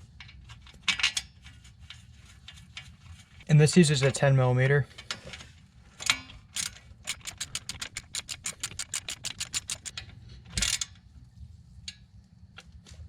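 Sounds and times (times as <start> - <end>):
short clatter: 6.0 - 10.9
socket ratchet clicking: 6.5 - 10.0, 10.6 - 10.9.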